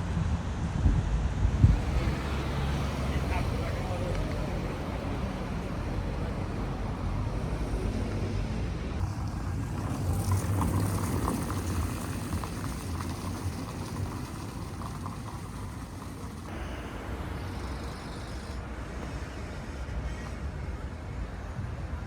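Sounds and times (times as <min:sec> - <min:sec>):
traffic rumble: 0:00.0 - 0:22.0
noisy hiss: 0:09.0 - 0:22.0.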